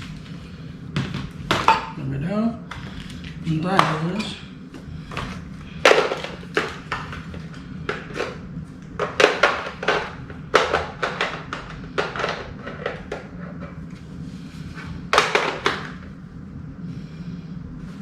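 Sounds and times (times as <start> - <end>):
plastic parts knocking and clicking: 9.0 - 13.8, 15.1 - 16.0.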